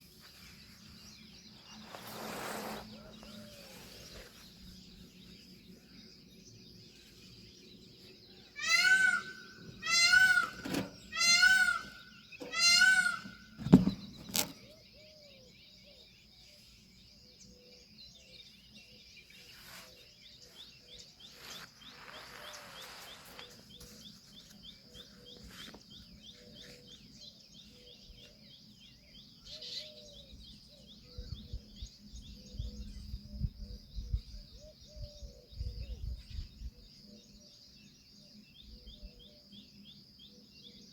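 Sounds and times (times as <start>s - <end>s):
high insect drone: 0.0s - 40.9s
peafowl calling: 8.4s - 14.5s.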